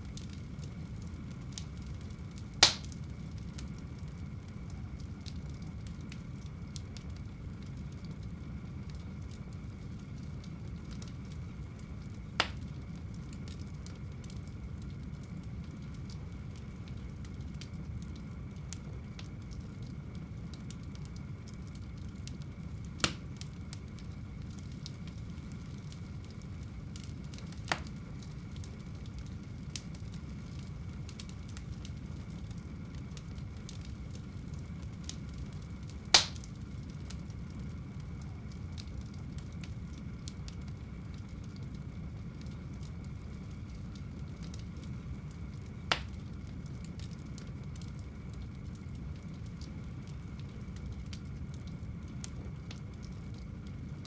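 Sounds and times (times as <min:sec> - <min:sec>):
fire crackling: 0:00.0 - 0:54.0
sharp pops of burning wood: 0:00.1 - 0:04.0, 0:10.8 - 0:15.0, 0:21.9 - 0:41.4, 0:44.3 - 0:49.3.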